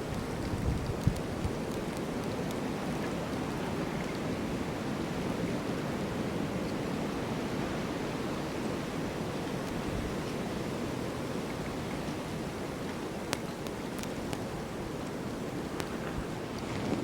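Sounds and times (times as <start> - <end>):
snowstorm wind rushing: 16.0 - 17.0.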